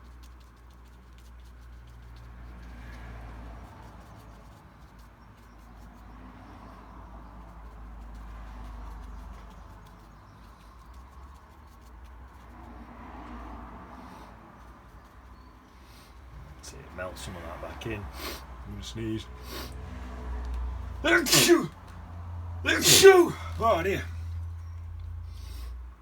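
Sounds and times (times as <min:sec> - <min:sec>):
paintbrush scrubbing on paper: 0:00.0 - 0:19.9.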